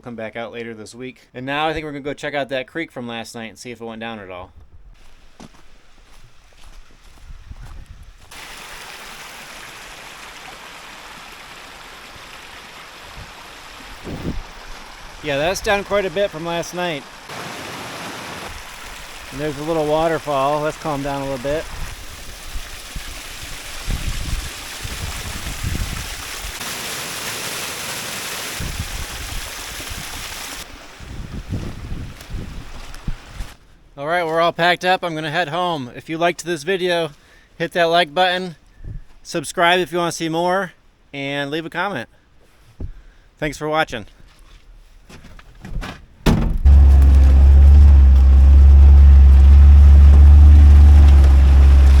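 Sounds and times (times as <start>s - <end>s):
wind buffeting microphone: 7.1s - 8.3s, 14.0s - 14.7s, 21.6s - 26.6s, 31.0s - 33.6s
water rushing over small waterfall: 8.3s - 31.0s, 46.6s - 52.0s
vehicle engine rumble: 46.3s - 52.0s.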